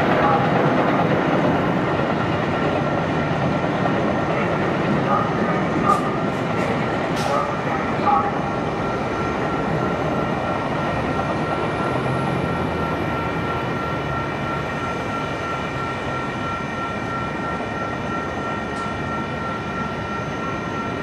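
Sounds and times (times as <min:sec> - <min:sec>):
train rumble: 0:00.0 - 0:21.0.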